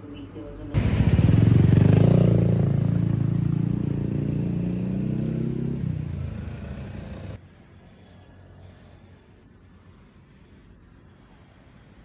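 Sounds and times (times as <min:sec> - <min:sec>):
motorcycle engine running: 0:00.8 - 0:07.4.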